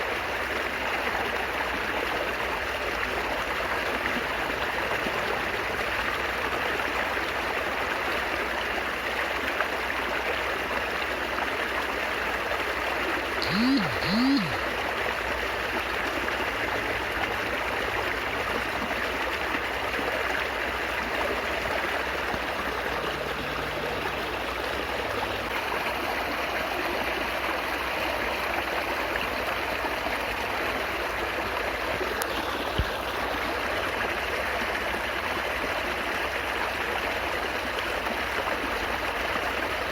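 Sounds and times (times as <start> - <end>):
stream babbling: 0.0 - 39.9
short rising and falling sounds: 13.4 - 14.6.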